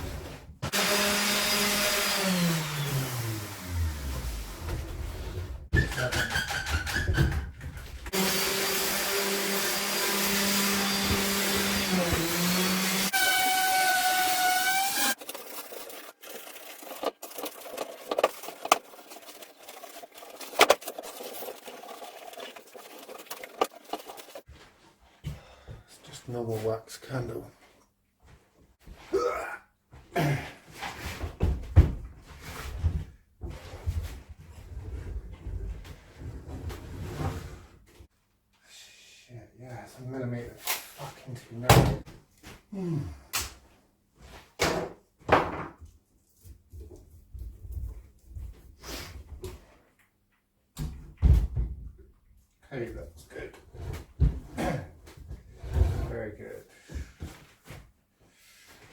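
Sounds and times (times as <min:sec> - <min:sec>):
power tool motor running: 0:00.7 - 0:04.6, 0:08.1 - 0:15.2
timber scraping: 0:03.2 - 0:08.2, 0:14.4 - 0:24.5.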